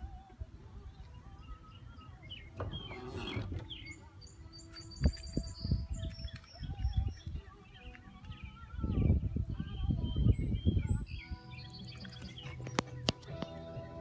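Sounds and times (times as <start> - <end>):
songbirds chirping and trilling: 0.0 - 14.0.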